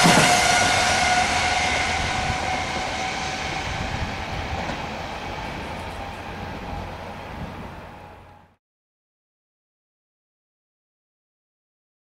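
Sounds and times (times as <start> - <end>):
traction motors whining: 0.0 - 8.5
high-speed train pulling away: 0.0 - 8.6.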